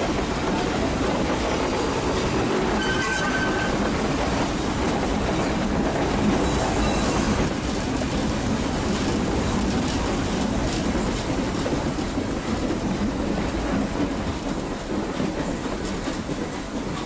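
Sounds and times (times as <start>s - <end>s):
train wheels rumbling on rails: 0.0s - 17.0s
high wheel squeal: 2.7s - 4.0s, 6.4s - 7.4s.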